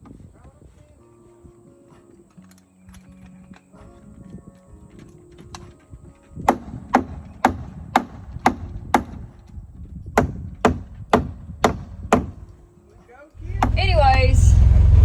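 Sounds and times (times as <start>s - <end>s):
hammer striking nails into wood: 6.4s - 9.2s, 10.1s - 12.4s.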